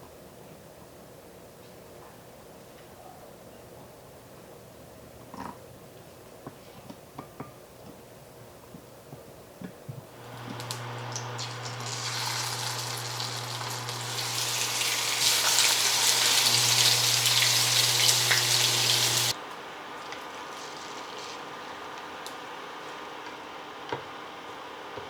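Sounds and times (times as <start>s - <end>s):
steady low hum: 10.2s - 19.4s
water running from a tap: 10.2s - 19.4s.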